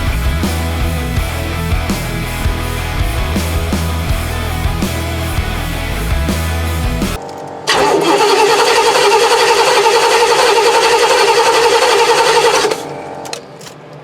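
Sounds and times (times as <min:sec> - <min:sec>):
engine cranking on starter: 0:07.7 - 0:12.9.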